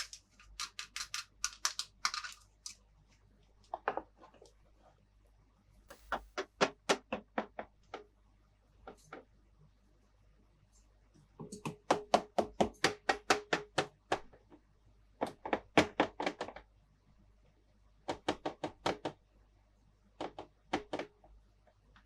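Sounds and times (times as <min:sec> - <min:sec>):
toy pieces tapping and clicking: 0:00.0 - 0:02.8.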